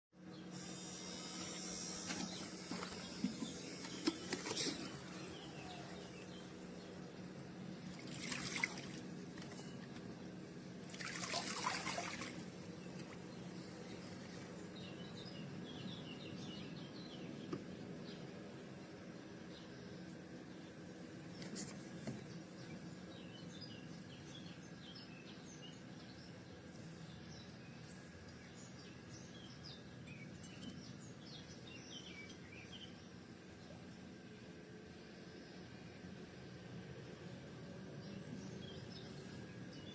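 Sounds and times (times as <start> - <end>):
small birds chirping: 0.2 - 18.7, 19.4 - 34.0
steady low hum: 0.2 - 39.9
water trickling and splashing: 7.8 - 9.6, 10.8 - 13.3.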